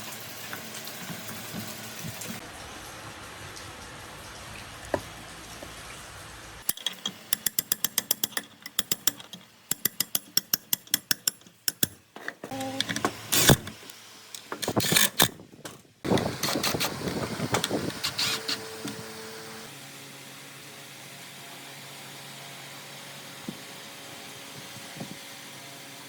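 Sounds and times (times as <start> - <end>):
steady mechanical noise: 6.1 - 26.0
rapid metallic ratchet clicks: 6.6 - 12.0.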